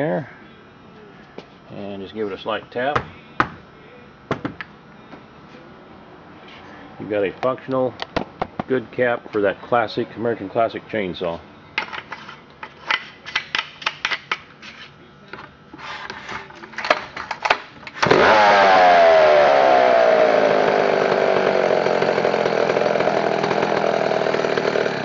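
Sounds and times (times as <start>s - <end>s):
chainsaw engine running: 18.0s - 25.0s.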